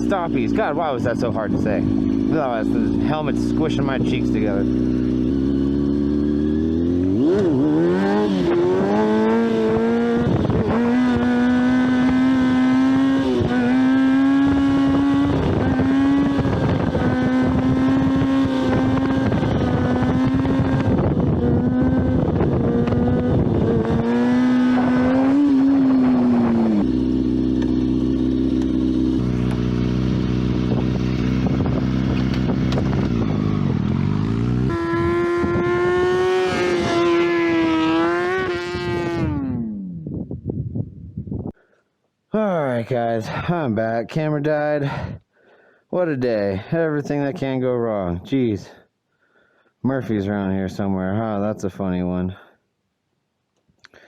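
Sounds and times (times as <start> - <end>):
motorcycle engine revving: 0.0 - 40.4.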